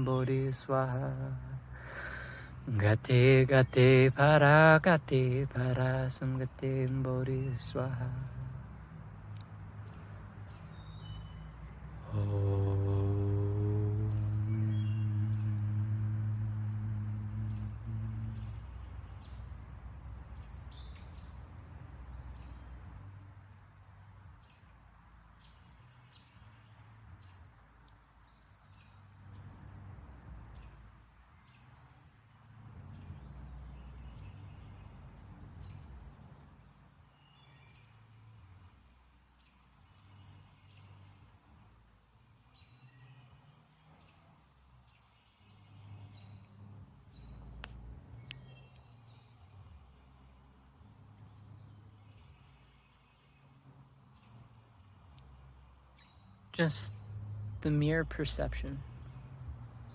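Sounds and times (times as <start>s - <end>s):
low hum: 0.0s - 23.9s
crickets trilling: 0.0s - 59.9s
low tone: 12.0s - 19.5s.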